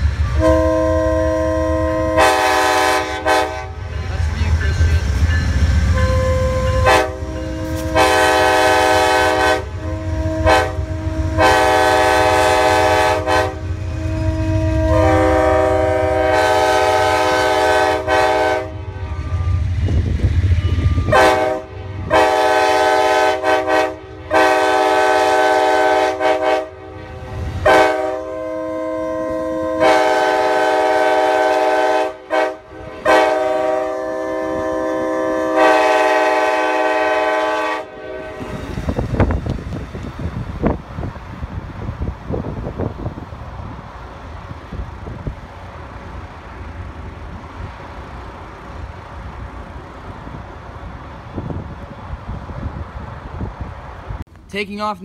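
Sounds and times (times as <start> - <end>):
multi-chime train horn blasts: 0.2 - 3.9, 5.4 - 19.8, 20.6 - 38.8.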